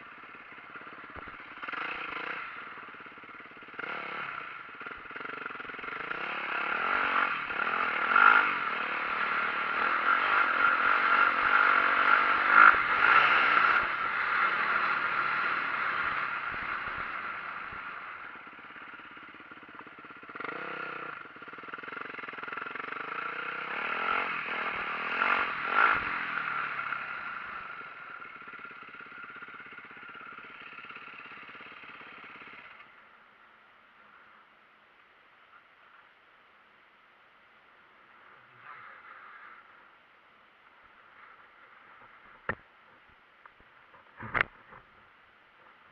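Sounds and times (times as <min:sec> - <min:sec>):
dirt bike engine: 0:00.0 - 0:33.2, 0:37.9 - 0:45.9.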